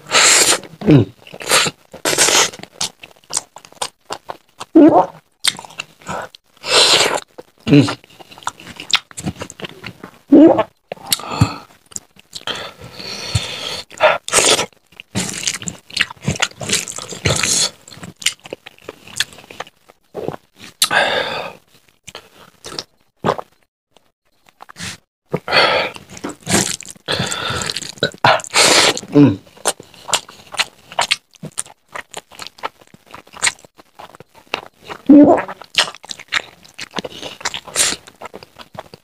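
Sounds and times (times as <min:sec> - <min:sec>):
wet chewing and lip-smacking: 0:08.2 - 0:10.0, 0:26.0 - 0:39.0.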